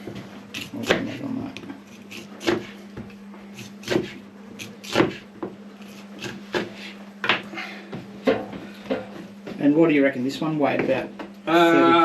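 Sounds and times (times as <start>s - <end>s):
knocks and thumps of meat cutting: 0.0s - 9.6s
steady low hum: 0.0s - 12.0s.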